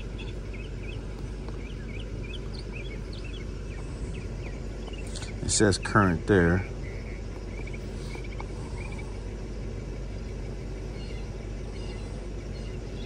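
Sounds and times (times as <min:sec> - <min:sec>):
car engine idling: 0:00.0 - 0:13.0
faint high chirps: 0:10.0 - 0:13.0.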